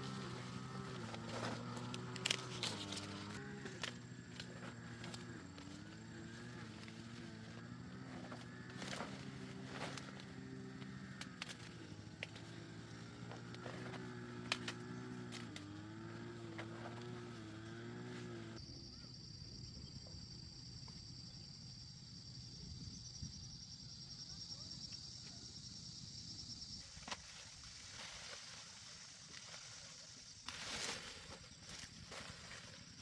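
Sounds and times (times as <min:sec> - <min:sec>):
small engine running: 0:00.0 - 0:18.6
high-pitched insect buzz: 0:00.0 - 0:33.0.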